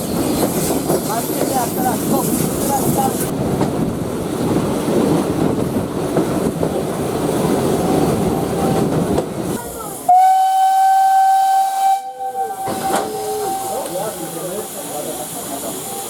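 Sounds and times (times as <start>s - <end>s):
train rumbling on track: 0.0s - 16.0s
steam locomotive whistle: 10.1s - 14.4s.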